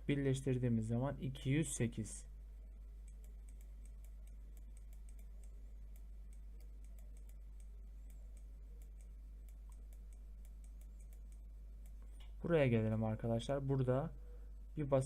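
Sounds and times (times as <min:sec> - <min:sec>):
low electrical hum: 0:00.0 - 0:15.0
keyboard typing: 0:03.0 - 0:12.1.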